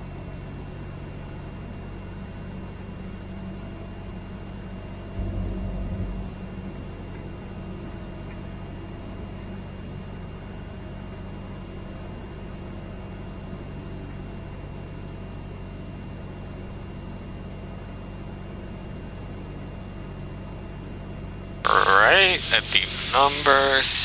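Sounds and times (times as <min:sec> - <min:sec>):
faint high whine: 0:21.7 - 0:24.0.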